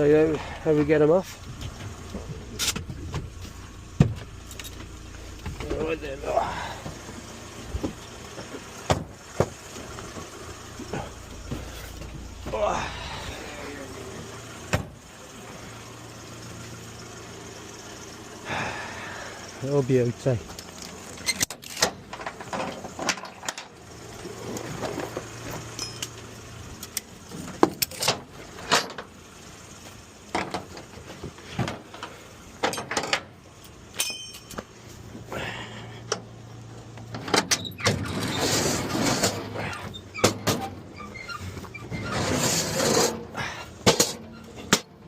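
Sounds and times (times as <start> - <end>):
low steady hum: 0.0 - 22.4
metal clanks and knocks: 30.4 - 33.3, 34.0 - 34.7.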